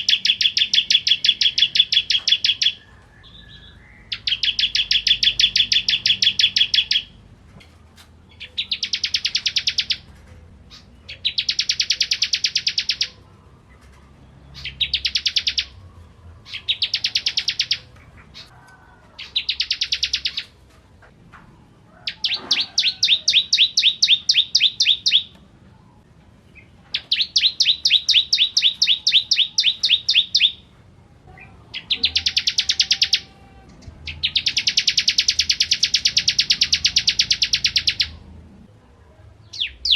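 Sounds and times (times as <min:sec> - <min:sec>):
bird singing rapid trills: 0:00.0 - 0:07.2, 0:08.3 - 0:10.1, 0:10.7 - 0:13.2, 0:14.3 - 0:18.5, 0:19.2 - 0:20.5, 0:22.2 - 0:25.3, 0:26.6 - 0:30.6, 0:31.7 - 0:38.2.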